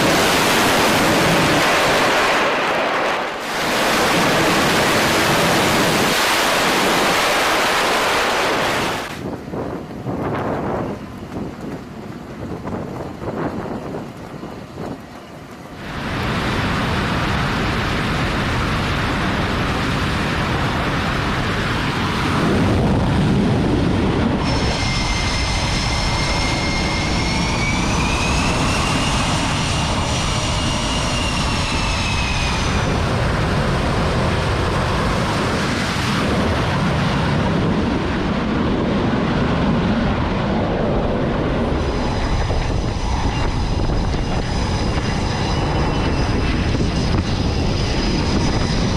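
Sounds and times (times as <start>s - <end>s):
high turbine whine: 0.0s - 48.9s
jet engines roaring: 0.0s - 48.9s.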